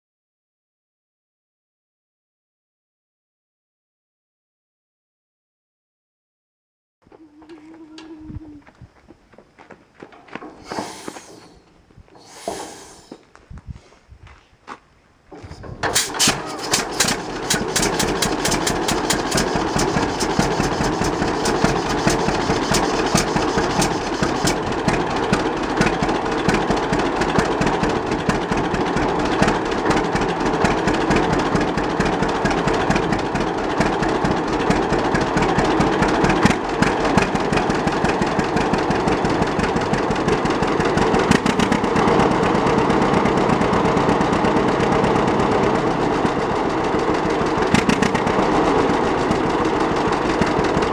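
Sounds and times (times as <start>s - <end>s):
tractor engine putt-putt: 10.1s - 13.2s, 15.3s - 50.9s.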